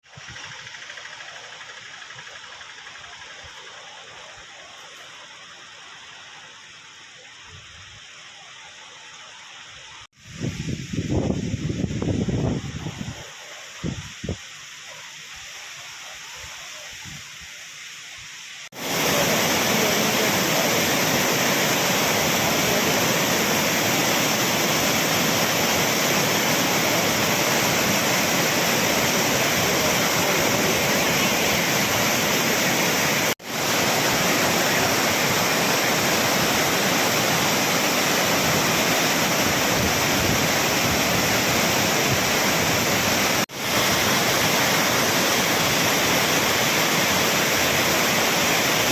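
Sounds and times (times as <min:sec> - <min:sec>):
waterfall rushing: 0:18.4 - 0:48.9.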